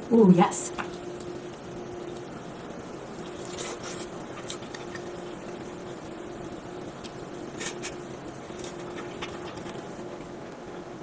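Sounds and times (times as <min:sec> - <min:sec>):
faint steady hum: 0:00.0 - 0:11.0
person chewing wet food: 0:03.2 - 0:10.3.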